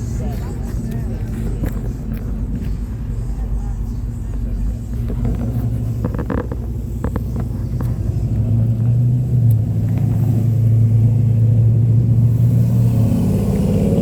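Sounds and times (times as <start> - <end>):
car engine running deep: 0.0 - 14.0.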